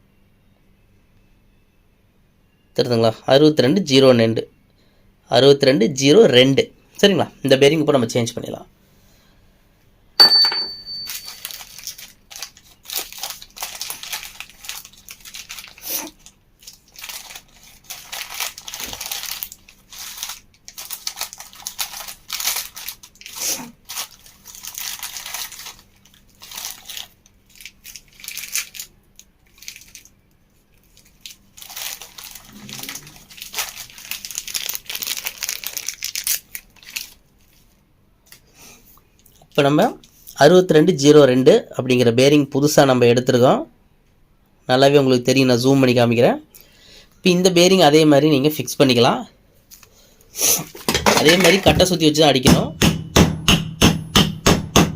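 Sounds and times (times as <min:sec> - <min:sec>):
packaging crinkling and tearing: 0:11.1 - 0:37.8.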